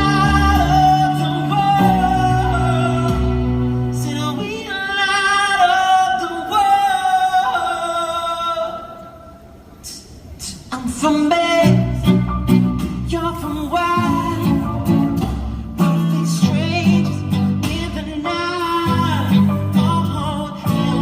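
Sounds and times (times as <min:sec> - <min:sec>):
person singing long notes: 0:00.0 - 0:09.3.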